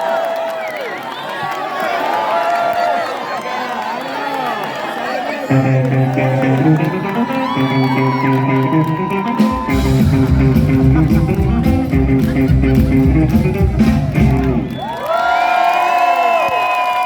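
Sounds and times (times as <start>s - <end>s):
electric guitar: 5.5s - 14.8s
rockabilly band playing: 5.5s - 14.8s
bass and drums: 9.3s - 14.8s.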